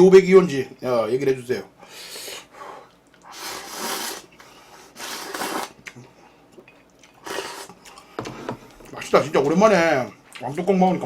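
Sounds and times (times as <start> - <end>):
person slurping noodles: 3.3 - 4.3, 4.9 - 5.8, 7.2 - 7.8.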